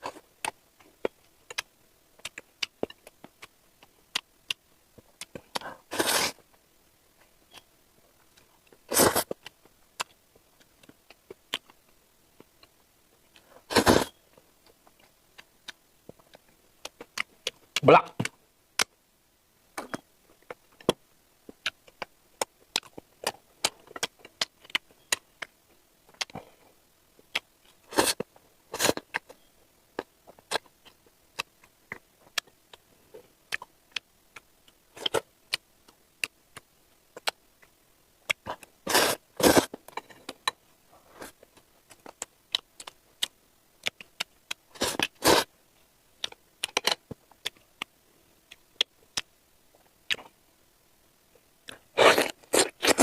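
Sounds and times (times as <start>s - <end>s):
wet chewing and mouth clicks: 33.5s - 38.7s, 41.2s - 45.5s.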